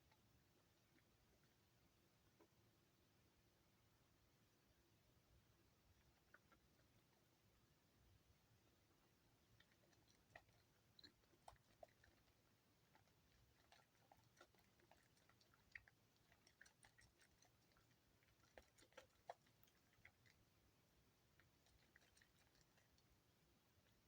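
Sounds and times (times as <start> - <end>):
soap lathering squishing: 9.4 - 24.0.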